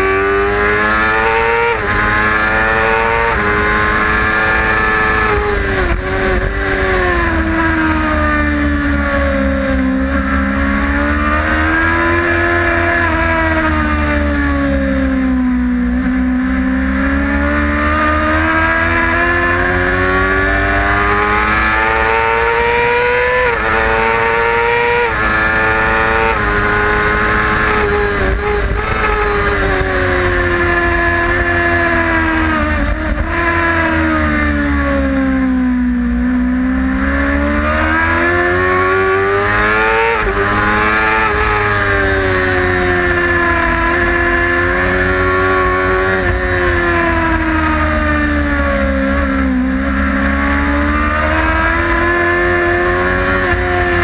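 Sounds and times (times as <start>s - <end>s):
racing motorcycle engine: 0.0s - 54.0s
wind rush on microphone: 3.3s - 8.2s, 25.1s - 34.0s.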